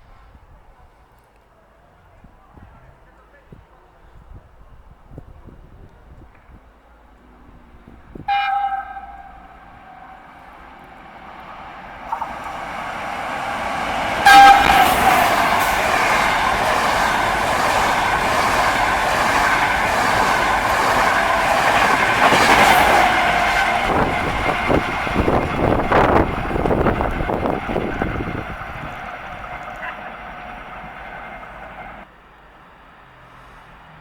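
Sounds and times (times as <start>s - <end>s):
train rushing past: 7.2s - 32.1s
train horn blast: 8.1s - 32.0s
wheels clacking over rail joints: 8.5s - 32.0s.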